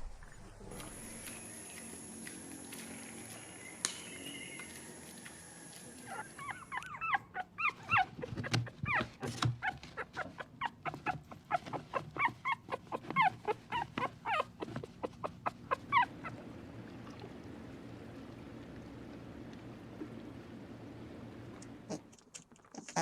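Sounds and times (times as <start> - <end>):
animal high-pitched calls: 5.7 - 8.2.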